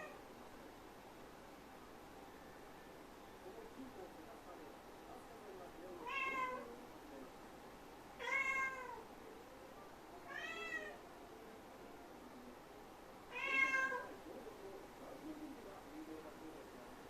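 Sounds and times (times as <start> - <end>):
cat meowing: 6.0 - 6.7, 8.2 - 9.0, 10.3 - 11.0, 13.3 - 14.1.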